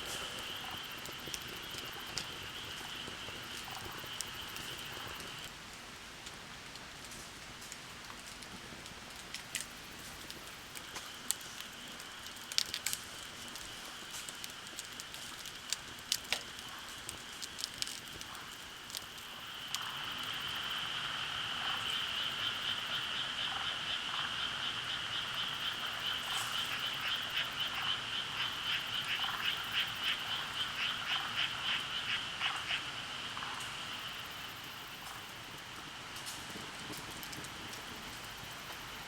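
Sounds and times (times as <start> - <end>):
frog calling: 17.6 - 35.3.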